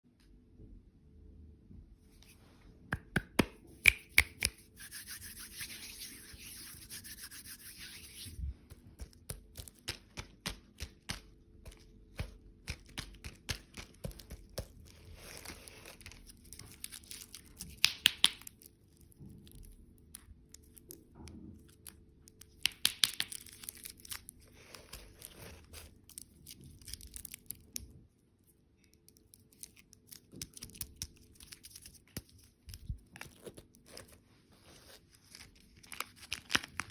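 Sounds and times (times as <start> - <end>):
plastic wrappers crinkling: 12.8 - 19.2, 35.2 - 36.9.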